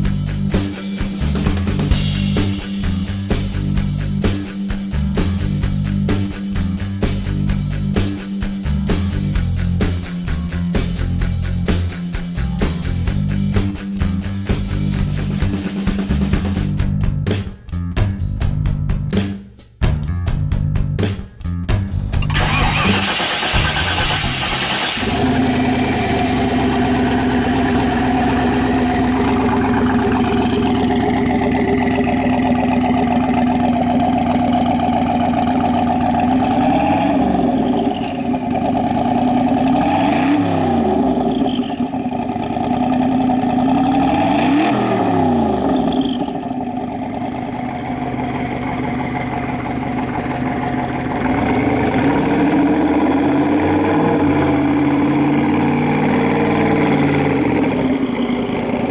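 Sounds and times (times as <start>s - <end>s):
car engine idling: 21.9s - 58.9s
engine revving: 21.9s - 58.9s.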